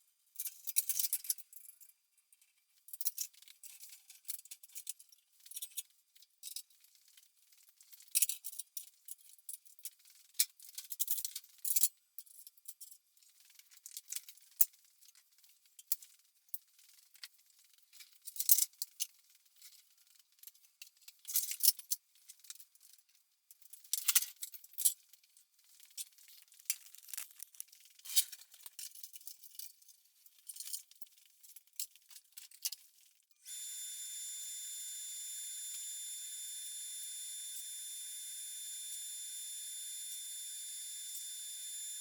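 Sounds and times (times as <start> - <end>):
steady hiss with high tones: 33.5 - 42.0.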